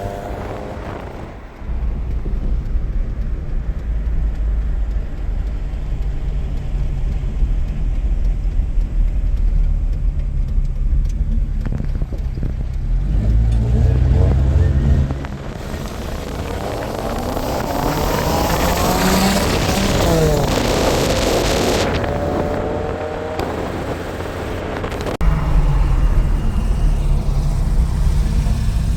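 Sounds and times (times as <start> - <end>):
car engine and road rumble: 0.0 - 28.9.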